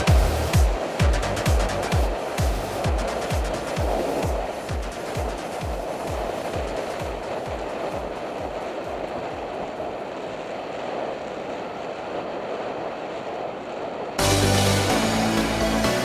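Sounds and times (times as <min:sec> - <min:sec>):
background music with thumping beat: 0:00.0 - 0:09.0, 0:14.2 - 0:16.0
wind and road rush: 0:00.0 - 0:16.0.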